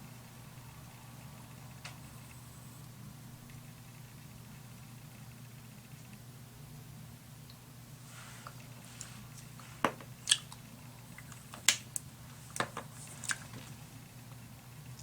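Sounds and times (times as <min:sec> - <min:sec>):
soft brushing: 0:08.0 - 0:09.8.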